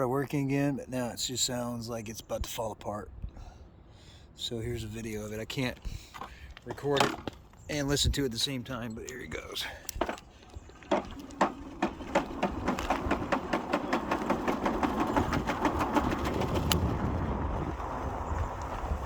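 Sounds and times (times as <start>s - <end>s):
e-bike motor clicking and knocking: 10.9s - 17.0s.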